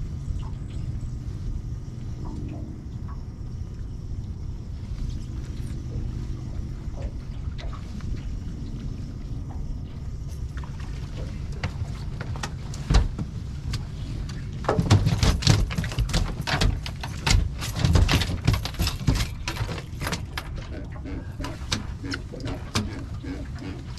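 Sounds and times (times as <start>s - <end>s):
steady low rumble: 0.0s - 23.9s
gear knocking and clattering: 11.6s - 20.8s.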